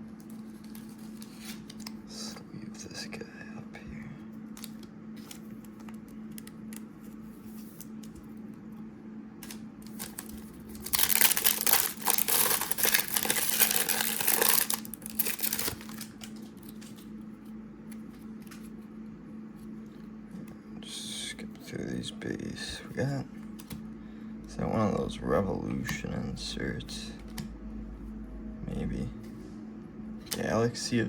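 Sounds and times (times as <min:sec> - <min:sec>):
steady low hum: 0:00.0 - 0:31.0
cards handled with light clicks: 0:00.2 - 0:02.0, 0:04.4 - 0:08.6, 0:15.3 - 0:18.9, 0:23.4 - 0:23.8
plastic packaging crinkling: 0:09.4 - 0:17.1.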